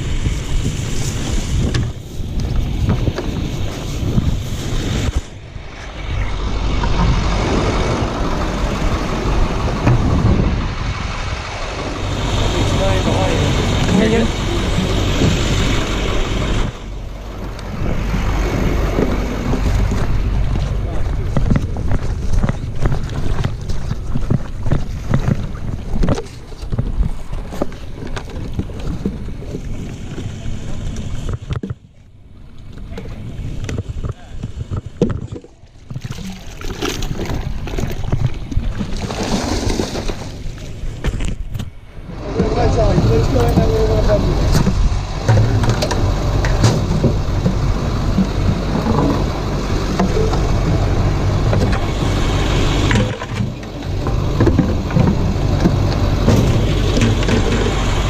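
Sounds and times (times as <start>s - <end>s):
wind buffeting microphone: 0.0s - 58.0s
truck engine idling: 5.5s - 23.7s, 41.8s - 58.0s.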